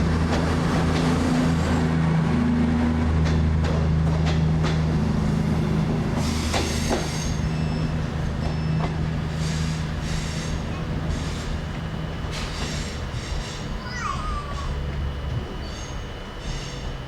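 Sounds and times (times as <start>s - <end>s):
train running gear hum: 0.0s - 17.0s
wheels squealing on rails: 5.9s - 17.0s.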